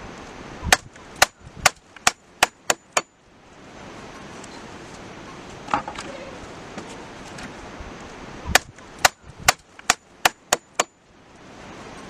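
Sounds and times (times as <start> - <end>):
hammer blows: 0.7 - 3.1, 8.5 - 10.9.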